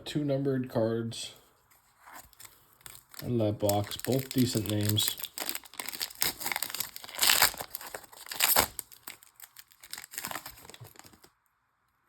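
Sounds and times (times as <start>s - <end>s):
foil wrapper tearing and crinkling: 2.1s - 11.3s.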